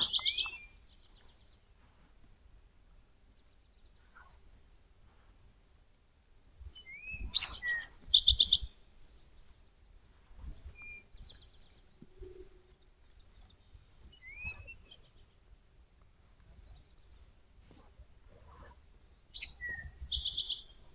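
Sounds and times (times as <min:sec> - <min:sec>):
songbird singing: 0:00.0 - 0:01.8, 0:02.9 - 0:04.5, 0:06.6 - 0:20.9.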